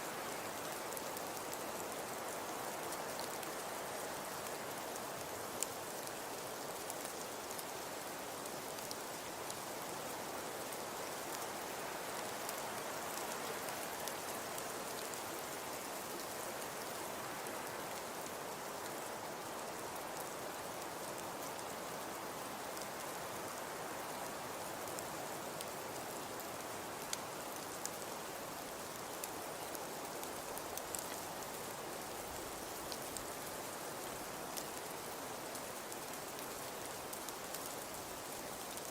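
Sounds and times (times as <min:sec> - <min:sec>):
wood fire crackling: 0:00.3 - 0:03.7, 0:05.2 - 0:09.6, 0:24.8 - 0:38.9.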